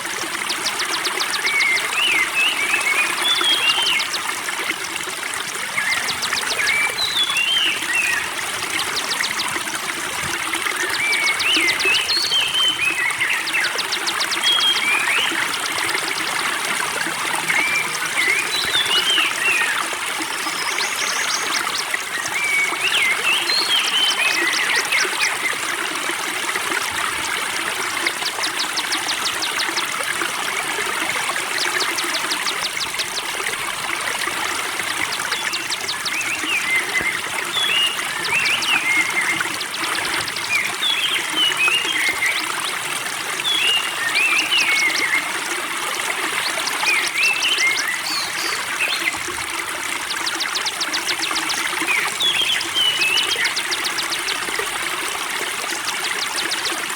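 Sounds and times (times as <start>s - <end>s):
water trickling: 0.0s - 56.9s
small birds chirping: 27.8s - 42.4s.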